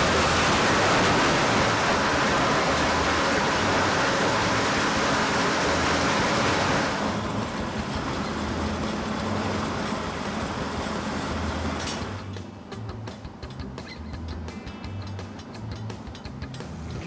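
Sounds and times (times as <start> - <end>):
wood grinding noise: 0.0 - 12.4
low machine drone: 0.0 - 17.0.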